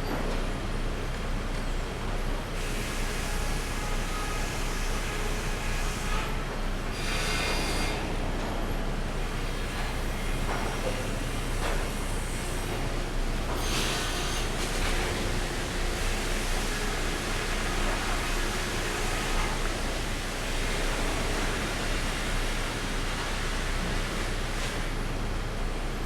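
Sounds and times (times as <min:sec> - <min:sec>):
sawmill machinery humming: 0:09.1 - 0:26.0.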